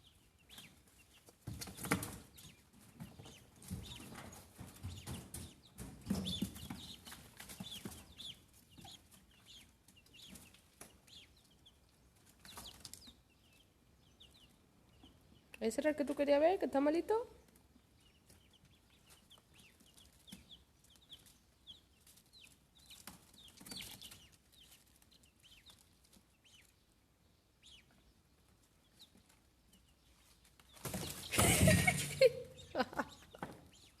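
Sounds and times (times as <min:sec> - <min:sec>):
chicks peeping: 0:00.0 - 0:34.0.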